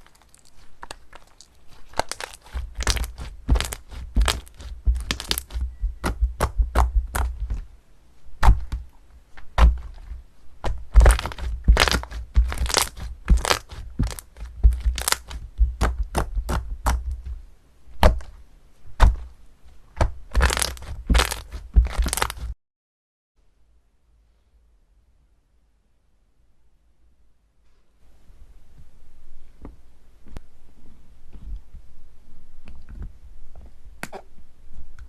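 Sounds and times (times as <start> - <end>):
crunchy slime crackling: 0.0 - 7.7, 8.4 - 17.4, 20.0 - 22.6.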